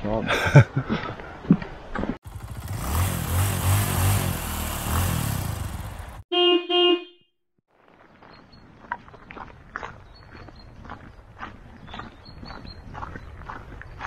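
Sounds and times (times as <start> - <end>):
vehicle engine running: 2.2 - 6.2
horn toots: 2.3 - 7.3.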